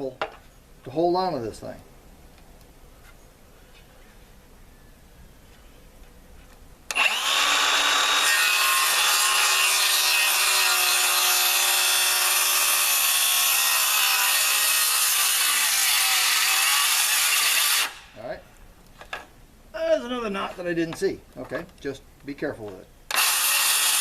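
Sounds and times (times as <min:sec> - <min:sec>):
circular saw cutting wood: 0:06.9 - 0:18.1, 0:23.1 - 0:24.0.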